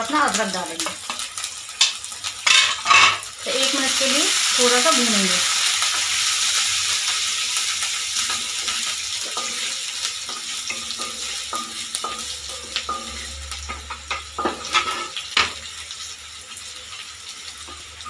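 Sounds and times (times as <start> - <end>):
food sizzling in hot oil: 0.0 - 18.0
wooden spatula scraping a pan: 8.2 - 15.5.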